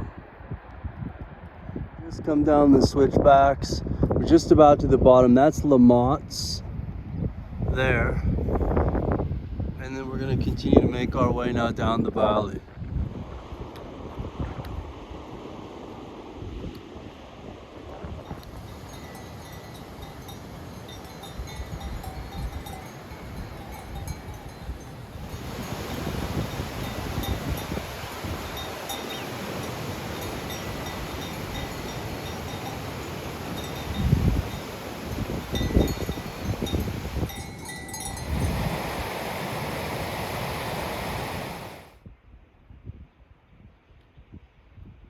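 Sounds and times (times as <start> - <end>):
wind rumbling on microphone: 0.0 - 45.0
steady rushing noise: 13.0 - 42.0
livestock bells clanking: 18.3 - 38.6.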